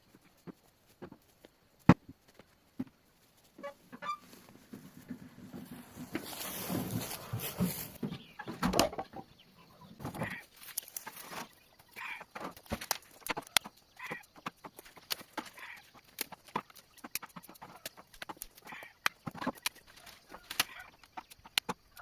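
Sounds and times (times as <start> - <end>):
hens clucking: 3.5 - 22.0
sharp clicks and snaps: 12.5 - 22.0.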